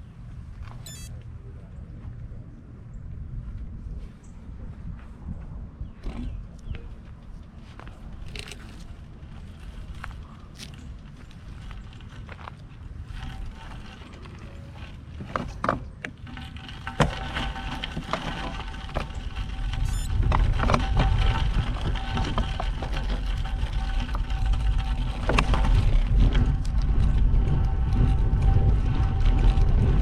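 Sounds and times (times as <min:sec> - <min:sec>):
wind buffeting microphone: 0:00.0 - 0:30.0
bike tyres crunching over rough lane: 0:07.0 - 0:30.0
low rumble: 0:16.4 - 0:30.0.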